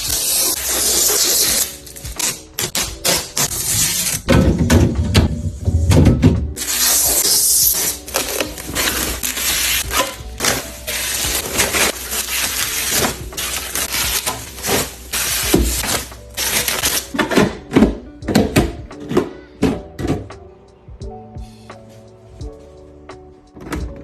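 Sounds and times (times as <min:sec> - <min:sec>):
packaging crinkling: 0:06.6 - 0:17.1.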